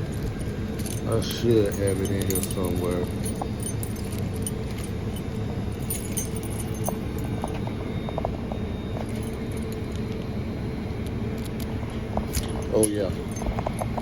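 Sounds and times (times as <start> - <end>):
keys jangling: 0.0 - 7.7, 9.0 - 10.1, 12.3 - 14.0
low engine hum: 0.0 - 14.0.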